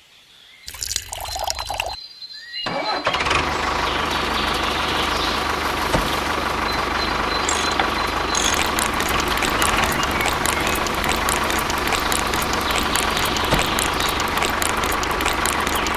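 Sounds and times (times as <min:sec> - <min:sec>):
motor running: 0:03.4 - 0:15.9.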